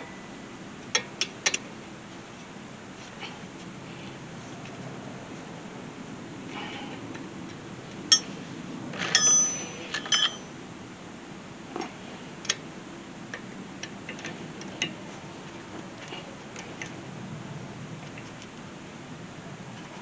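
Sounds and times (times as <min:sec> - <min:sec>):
metal tools clinking: 0:08.1 - 0:08.3, 0:09.0 - 0:10.5.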